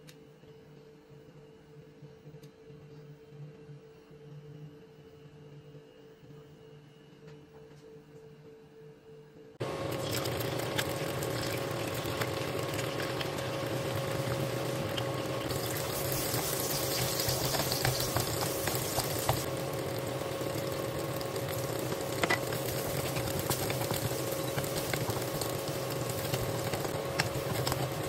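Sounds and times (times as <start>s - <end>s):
eggs sizzling in oil: 9.6s - 28.0s
wooden spatula stirring: 15.8s - 19.5s.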